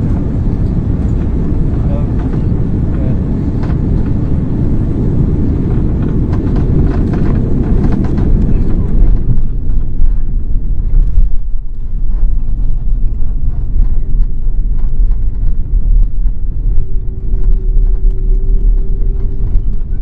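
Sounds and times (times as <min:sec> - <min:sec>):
jet engines rumbling: 0:00.0 - 0:20.0
faint steady hum: 0:08.4 - 0:20.0.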